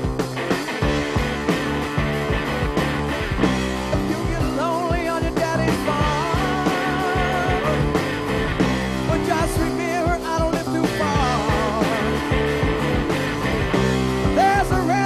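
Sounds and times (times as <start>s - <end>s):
drums and bass beat: 0.0s - 15.0s
electric guitar lead bending pitch: 0.0s - 15.0s.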